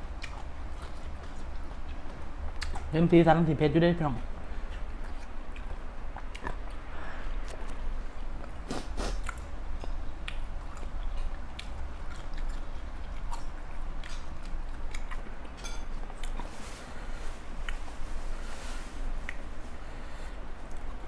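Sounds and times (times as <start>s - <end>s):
chewing and biting food: 0.0s - 3.0s, 4.3s - 16.5s.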